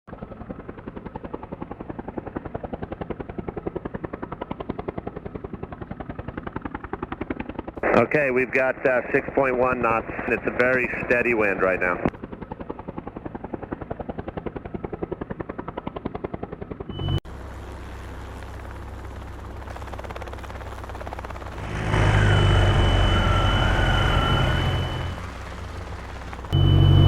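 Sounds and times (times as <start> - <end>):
helicopter rotor chopping: 0.1 - 17.2, 17.8 - 27.0
low engine drone: 16.9 - 27.0.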